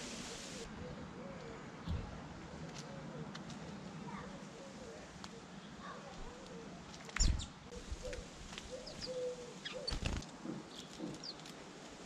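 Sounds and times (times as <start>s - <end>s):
small birds chirping: 4.1s - 11.6s.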